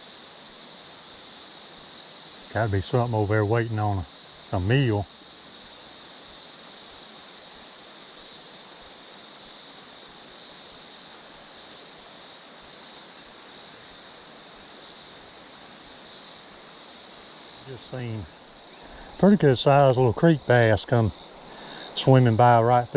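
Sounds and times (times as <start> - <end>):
high-pitched insect chorus: 0.0 - 22.9
creek water running over rocks: 17.8 - 22.9.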